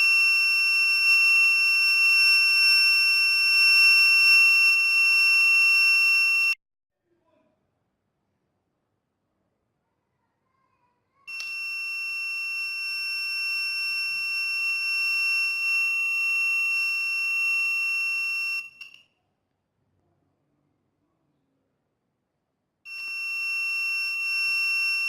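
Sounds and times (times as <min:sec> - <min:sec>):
high-pitched alarm tone: 0:00.0 - 0:06.6, 0:11.3 - 0:19.0, 0:22.9 - 0:25.0.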